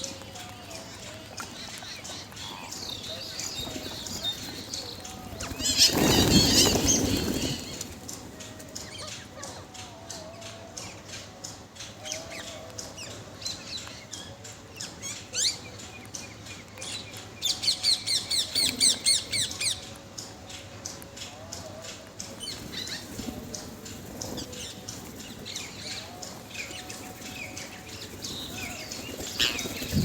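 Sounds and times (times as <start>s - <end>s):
parrots chirping: 0.0s - 8.0s
wing flapping: 0.0s - 9.4s, 22.3s - 30.0s.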